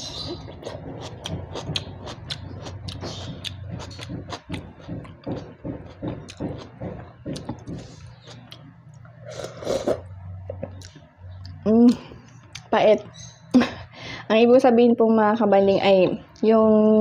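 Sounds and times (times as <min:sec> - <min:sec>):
low steady hum: 0:00.0 - 0:17.0
food being chewed: 0:00.1 - 0:11.6.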